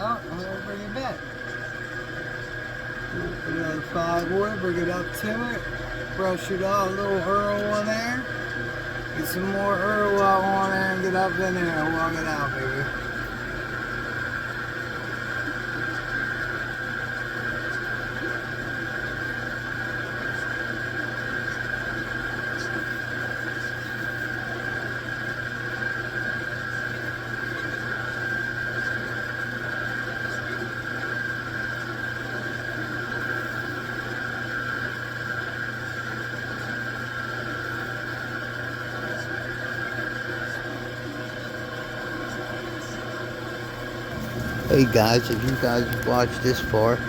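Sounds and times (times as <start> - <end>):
metal lathe whining: 0.0 - 22.4, 42.0 - 47.0.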